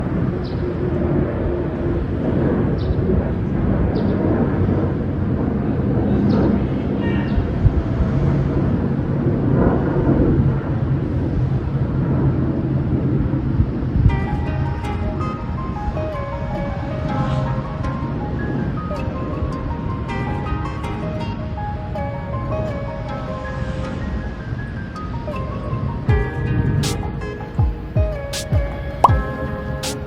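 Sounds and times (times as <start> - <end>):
music: 14.0 - 30.0.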